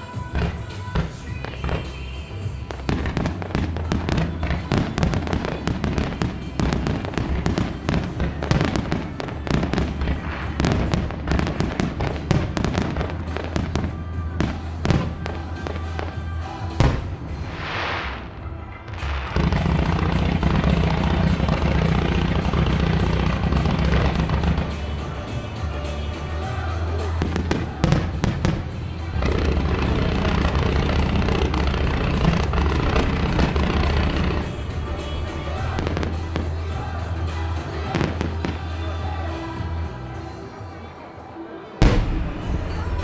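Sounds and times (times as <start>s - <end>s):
dense firework crackle: 0.0s - 39.4s, 41.8s - 43.0s
fireworks bangs and cracks: 0.0s - 39.9s, 41.8s - 43.0s
music over loudspeakers: 0.0s - 43.0s
firework hissing: 14.4s - 38.7s.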